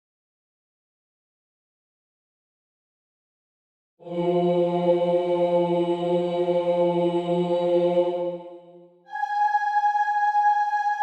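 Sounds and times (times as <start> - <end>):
choir holding a low note: 4.0 - 11.0.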